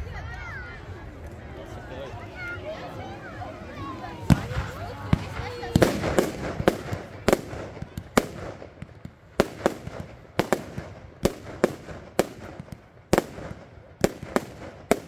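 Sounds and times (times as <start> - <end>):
fireworks bangs: 4.1 - 15.0.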